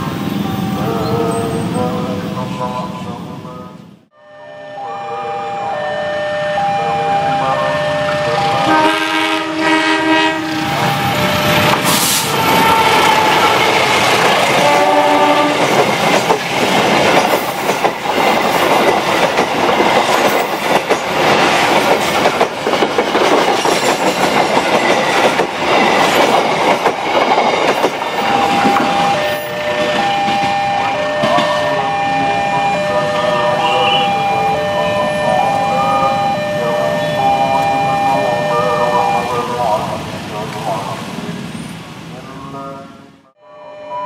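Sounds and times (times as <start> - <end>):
train passing at speed: 0.0 - 44.0
train horn: 4.1 - 13.8, 14.6 - 15.7, 28.2 - 35.2.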